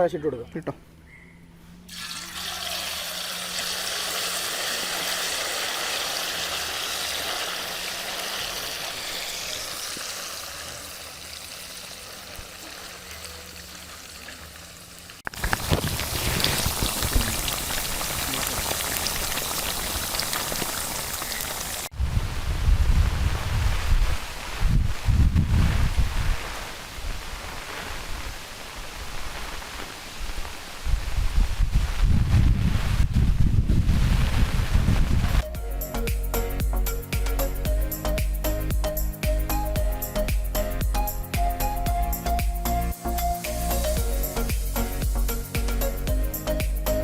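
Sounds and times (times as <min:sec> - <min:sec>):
fish sizzling in hot oil: 0:01.9 - 0:22.0
rain falling: 0:04.4 - 0:35.4.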